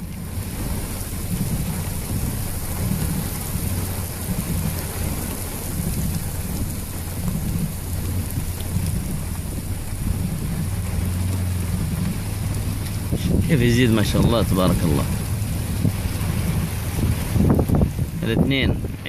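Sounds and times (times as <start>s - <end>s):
heavy rain hissing: 0.0s - 19.0s
low rumble: 0.0s - 19.0s.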